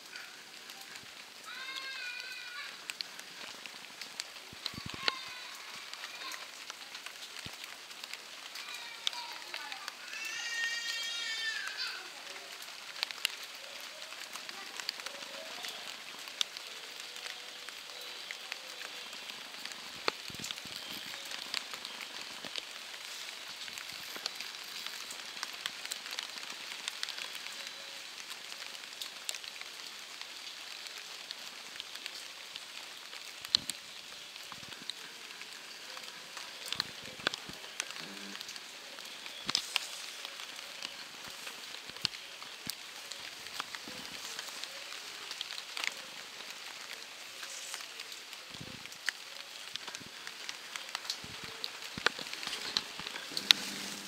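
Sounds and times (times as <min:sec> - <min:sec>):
rain hiss: 0:00.0 - 0:54.0
raindrops ticking: 0:00.0 - 0:54.0.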